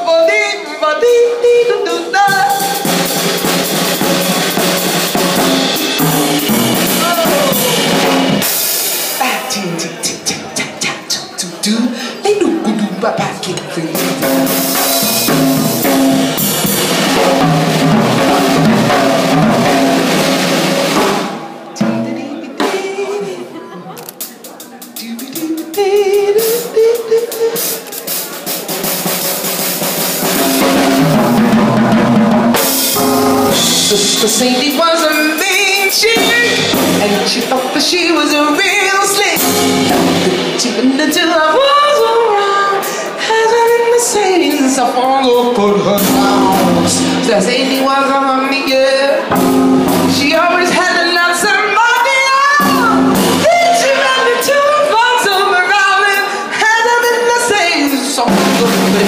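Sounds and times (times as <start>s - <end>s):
person singing: 0.0s - 20.3s, 21.2s - 28.2s, 30.3s - 59.0s
band melody: 1.0s - 11.6s, 12.4s - 23.3s, 24.0s - 55.8s, 57.0s - 59.0s
drum kit groove: 2.2s - 11.4s, 13.2s - 23.1s, 24.0s - 41.3s, 42.8s - 54.6s, 57.9s - 59.0s
walking bass line: 2.3s - 8.5s, 14.0s - 21.2s, 30.2s - 34.8s, 36.1s - 37.5s, 39.3s - 40.7s, 45.9s - 47.9s, 49.2s - 50.8s.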